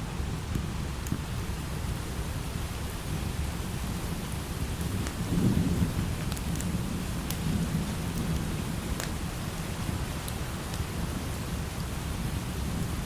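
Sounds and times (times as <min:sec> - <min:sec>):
light rain: 0:00.0 - 0:13.0
rolling thunder: 0:04.5 - 0:10.2.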